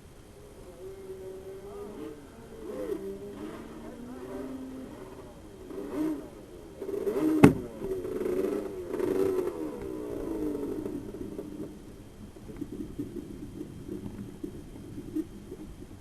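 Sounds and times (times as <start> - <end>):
kart engine revving: 0.7 - 11.8
sharp knock: 7.4 - 7.6.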